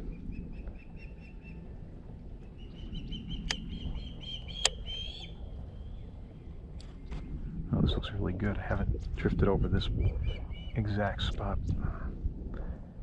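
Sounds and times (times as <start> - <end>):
bird chirping: 2.4 - 6.2, 9.8 - 10.9
sharp clicks: 3.4 - 3.7, 4.6 - 4.8.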